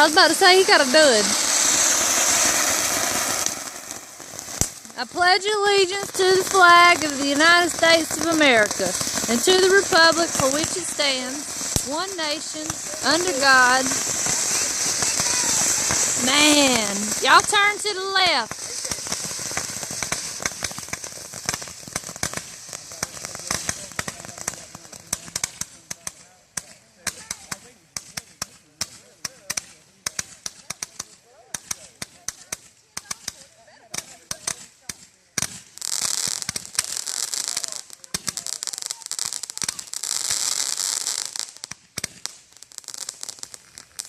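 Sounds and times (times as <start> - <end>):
steady hiss: 0.0 - 32.7
fireworks crackling: 0.0 - 44.0.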